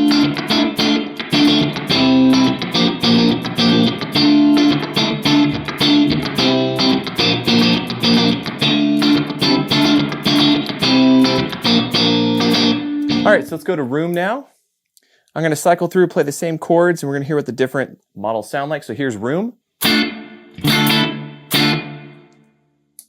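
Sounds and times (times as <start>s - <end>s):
clean electric guitar with reverb: 0.0s - 13.8s, 19.8s - 22.6s.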